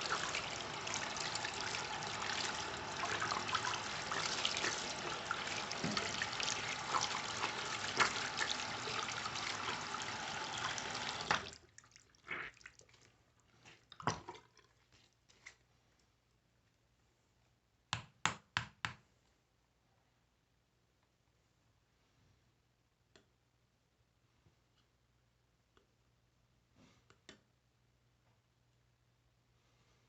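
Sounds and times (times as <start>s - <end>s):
tap water running: 0.0s - 13.0s.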